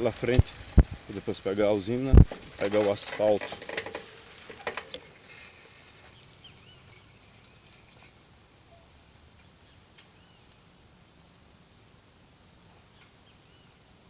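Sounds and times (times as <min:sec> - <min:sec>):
faint bird chirps: 0:05.3 - 0:10.6, 0:12.6 - 0:13.9.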